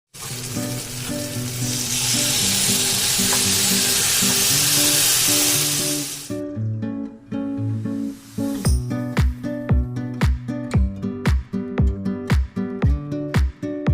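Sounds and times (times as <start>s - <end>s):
food sizzling in a pan: 0.1s - 6.4s, 7.8s - 9.0s.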